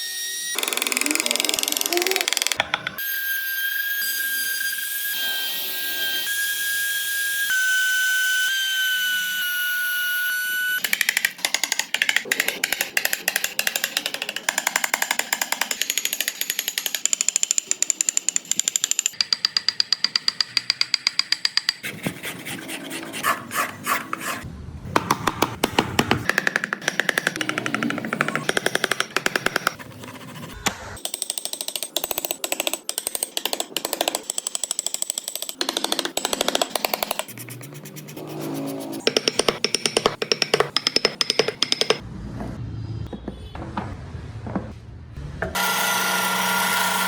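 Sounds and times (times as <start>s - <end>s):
small electric tool whining: 0.0s - 11.0s, 45.6s - 47.0s.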